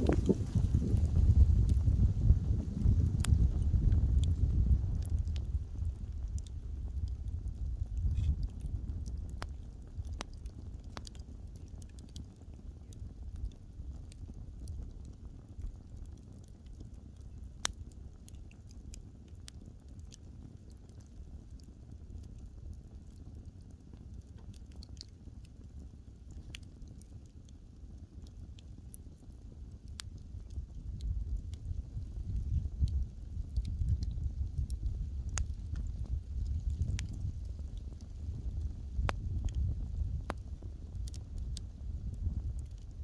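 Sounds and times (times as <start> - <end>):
low rumble of flames: 0.0 - 43.0
wood fire crackling: 0.0 - 43.0.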